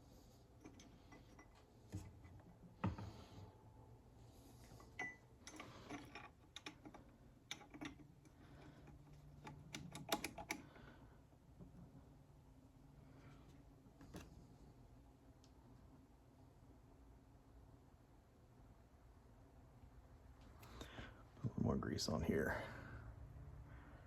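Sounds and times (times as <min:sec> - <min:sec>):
metal parts clicking and clinking: 0:04.7 - 0:10.6.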